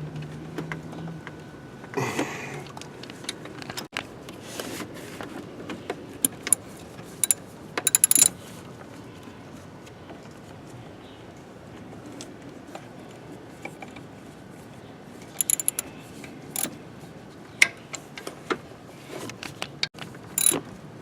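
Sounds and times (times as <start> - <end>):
hand tools clinking on metal: 6.2 - 6.6, 7.2 - 8.3, 15.4 - 15.8, 20.4 - 20.6.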